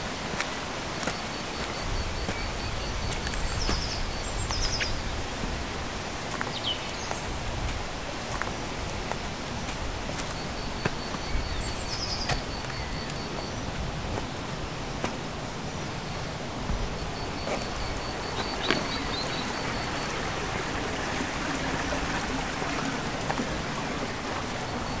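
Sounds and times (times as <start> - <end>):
small birds singing: 0.3 - 22.2.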